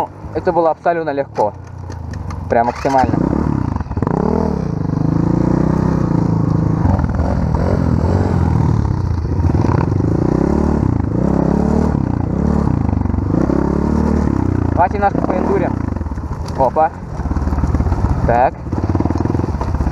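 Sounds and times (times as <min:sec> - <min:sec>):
off-road bike engine revving: 0:00.0 - 0:19.9
clatter: 0:01.3 - 0:03.2, 0:15.8 - 0:19.9.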